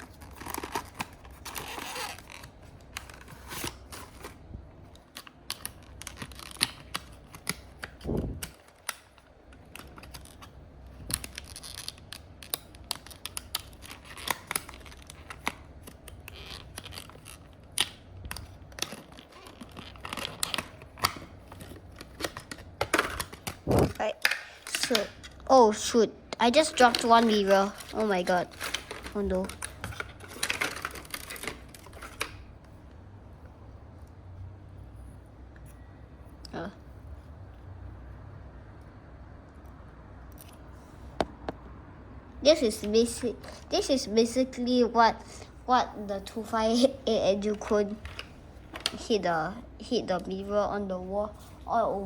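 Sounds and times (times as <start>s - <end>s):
packaging rustling: 0.0s - 25.4s, 26.4s - 32.6s.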